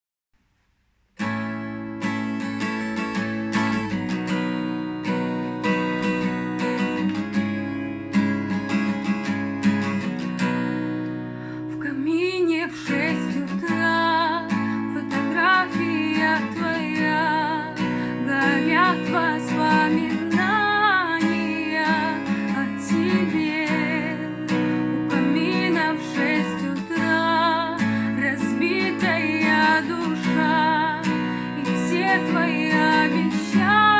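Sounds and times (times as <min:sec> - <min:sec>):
acoustic guitar strumming: 0:01.2 - 0:33.9
wordless vocal melody: 0:11.6 - 0:33.9.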